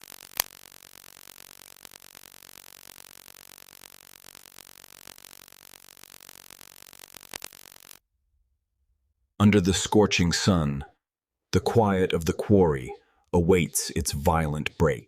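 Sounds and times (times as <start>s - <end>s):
small clicks: 0.0s - 8.0s
faint static hiss: 0.0s - 8.1s.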